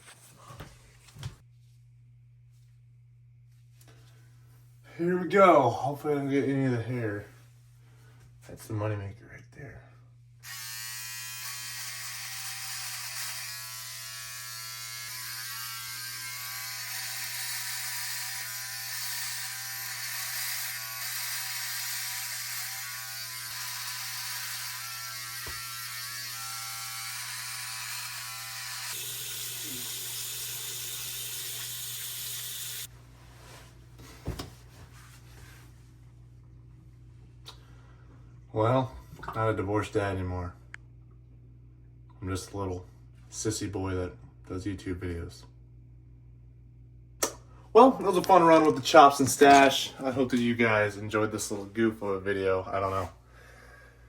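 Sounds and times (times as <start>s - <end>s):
electric razor buzzing: 10.4s - 32.9s.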